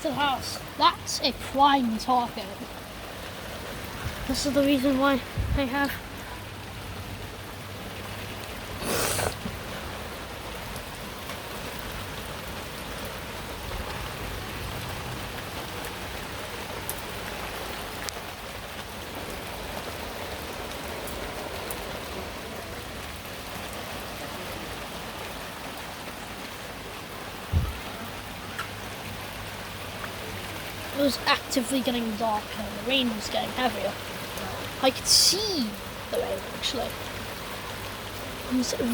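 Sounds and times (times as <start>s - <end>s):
steady rain falling: 0.0s - 38.9s
low thump: 27.5s - 27.8s.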